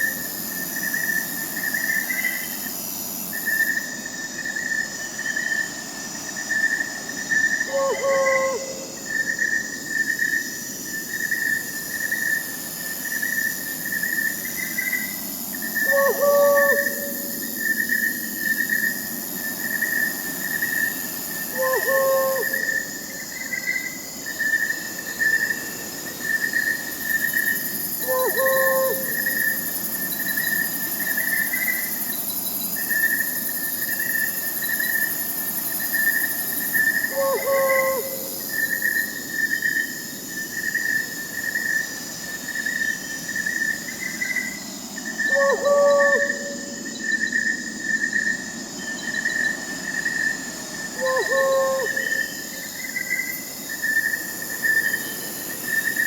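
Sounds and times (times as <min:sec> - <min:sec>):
crickets chirping: 0:00.0 - 0:56.0
high insect hiss: 0:00.0 - 0:56.0
owl hooting: 0:07.7 - 0:09.0, 0:15.8 - 0:17.4, 0:21.5 - 0:22.9, 0:28.0 - 0:29.6, 0:37.0 - 0:38.7, 0:45.2 - 0:46.8, 0:51.0 - 0:52.6.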